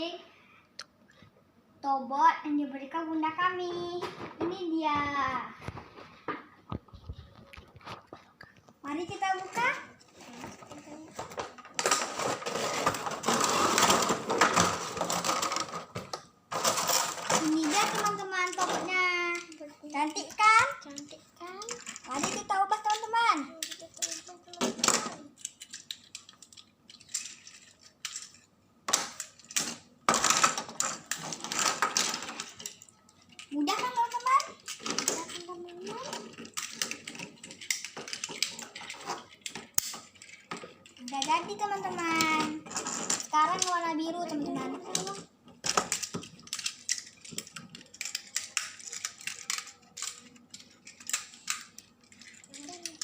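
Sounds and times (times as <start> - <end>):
plastic toy parts clicking: 11.4 - 53.0.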